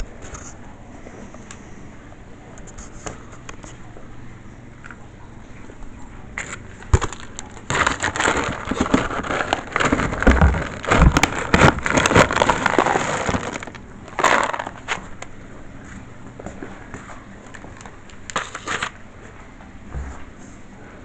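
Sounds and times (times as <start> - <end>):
cat food crackling and crunching: 5.6 - 19.1
rustling: 6.4 - 15.2.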